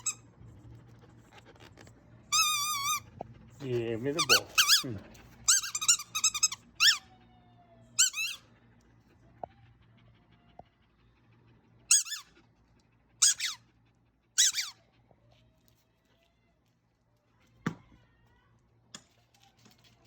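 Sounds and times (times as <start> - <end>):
squeaky toy squeaking: 0.0 - 0.2, 2.3 - 3.1, 3.7 - 7.1, 8.0 - 8.5, 11.9 - 12.4, 13.2 - 13.7, 14.4 - 14.8.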